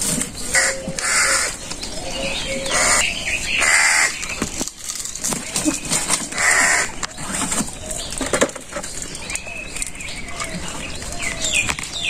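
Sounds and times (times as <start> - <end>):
birds chirping: 0.0 - 12.0
bird cawing: 0.5 - 4.2, 6.3 - 7.2.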